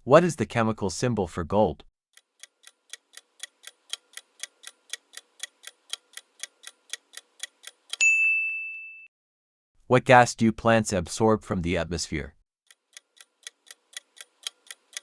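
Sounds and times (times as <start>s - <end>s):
clock ticking: 2.2s - 8.0s, 12.7s - 15.0s
ringing ding: 8.0s - 9.1s.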